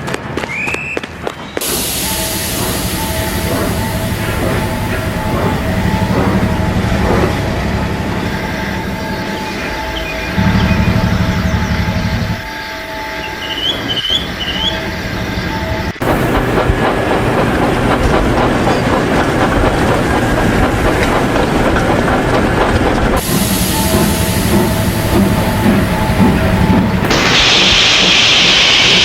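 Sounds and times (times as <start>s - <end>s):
train rattling by: 1.3s - 29.0s
steady hum: 15.9s - 29.0s.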